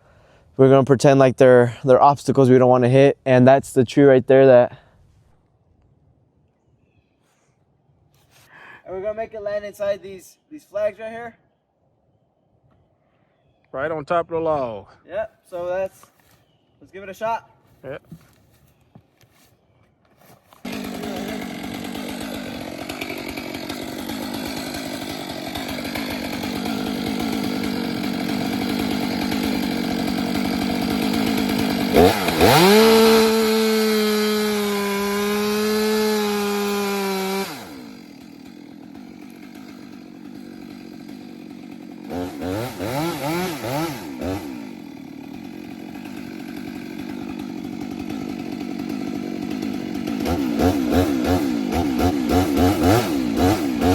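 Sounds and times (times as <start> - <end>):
chainsaw engine idling and revving: 20.6 - 53.9.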